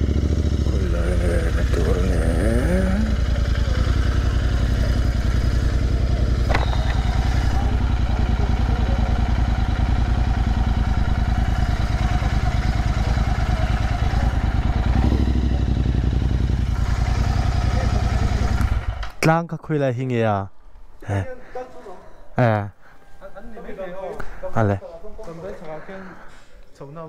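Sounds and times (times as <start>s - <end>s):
motorcycle engine idling: 0.0s - 19.2s.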